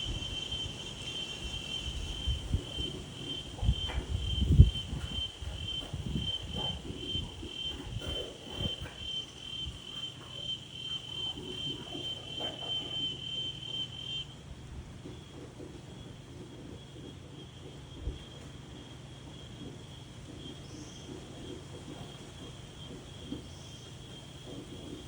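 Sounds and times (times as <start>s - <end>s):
wind rumbling on microphone: 0.0s - 17.1s
cricket chirping: 0.0s - 25.0s.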